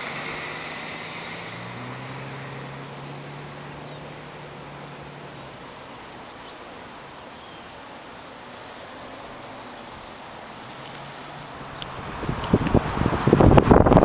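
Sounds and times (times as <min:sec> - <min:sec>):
low hum: 0:00.0 - 0:07.4
outdoor background noise: 0:00.0 - 0:14.0.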